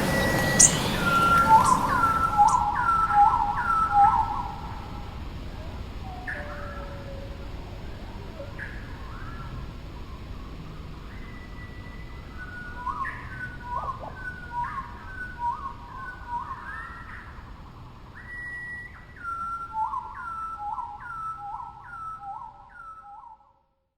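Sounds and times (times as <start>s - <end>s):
stream rushing: 0.0s - 2.7s
songbird whistling: 0.0s - 4.7s, 18.2s - 23.4s.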